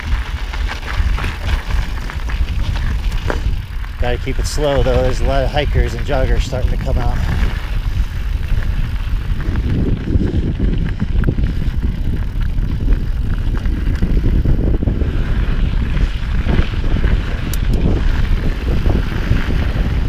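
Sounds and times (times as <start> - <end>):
bike knocks and rattles: 0.0 - 20.0
tyres crunching on dirt: 0.0 - 20.0
wind on microphone: 0.0 - 20.0.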